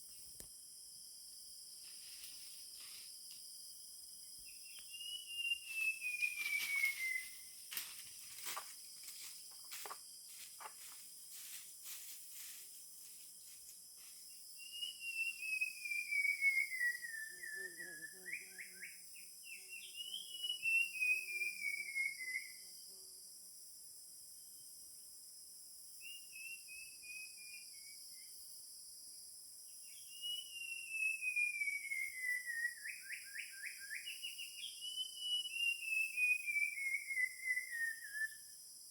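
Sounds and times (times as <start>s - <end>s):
insects buzzing: 0.0s - 38.9s
bird whistling: 4.7s - 7.4s, 19.7s - 22.5s, 29.9s - 38.4s.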